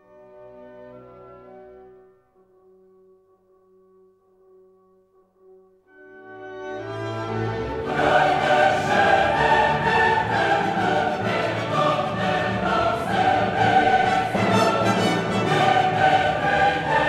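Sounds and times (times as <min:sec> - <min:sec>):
choir singing with orchestra: 0:06.7 - 0:17.0.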